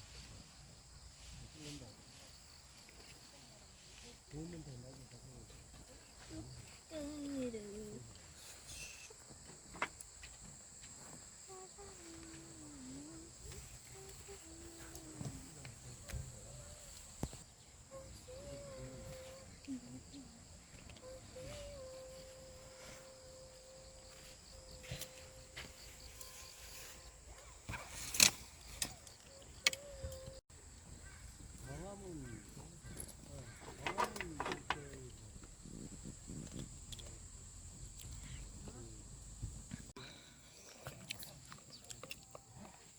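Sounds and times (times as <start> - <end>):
insects chirping: 0.0 - 42.9
faint voices: 11.0 - 28.0.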